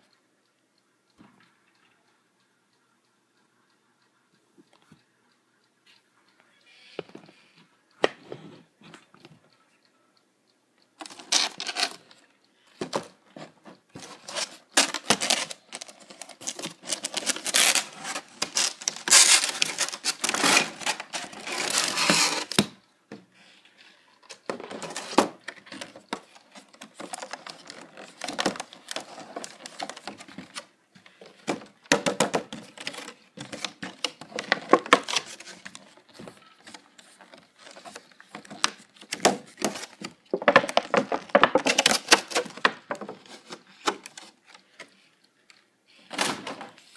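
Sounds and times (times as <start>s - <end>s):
plastic packaging crinkling: 14.0s - 22.6s.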